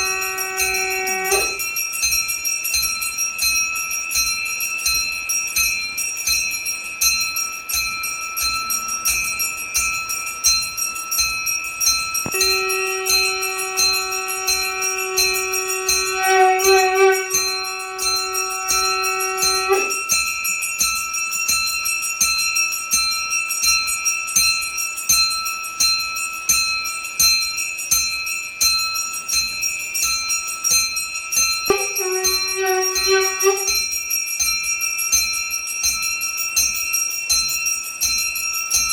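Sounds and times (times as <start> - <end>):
long held note with overtones: 0.0 - 1.6, 12.2 - 20.1, 31.7 - 33.8
metal hand bell ringing: 0.0 - 38.9.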